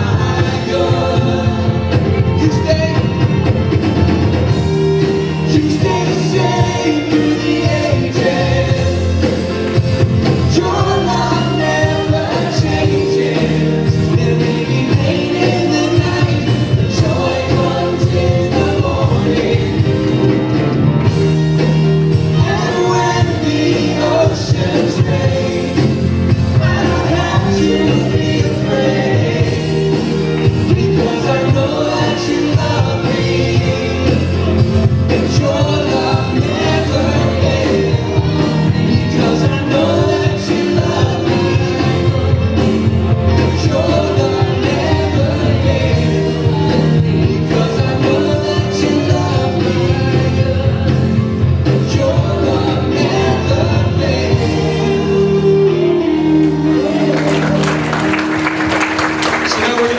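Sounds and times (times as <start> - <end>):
congregation singing: 0.0 - 59.9
worship band playing: 0.0 - 59.9.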